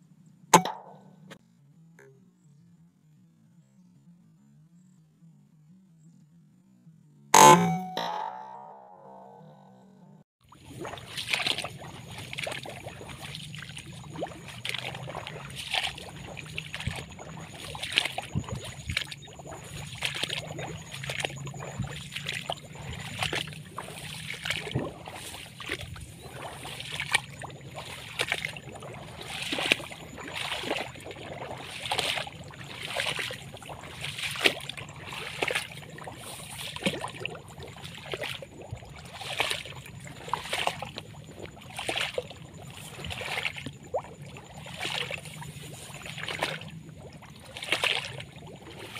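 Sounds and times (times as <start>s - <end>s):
footsteps splashing through water: 10.5s - 48.9s
faint low hum: 10.9s - 48.9s.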